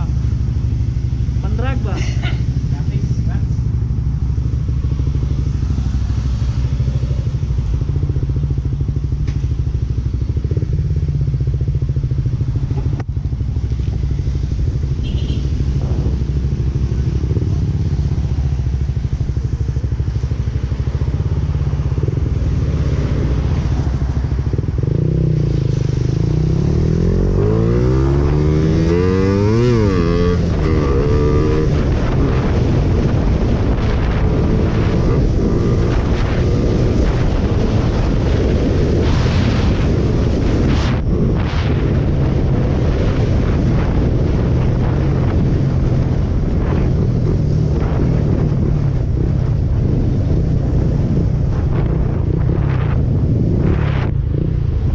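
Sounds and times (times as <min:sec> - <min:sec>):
motorcycle engine running and revving: 0:00.0 - 0:54.9.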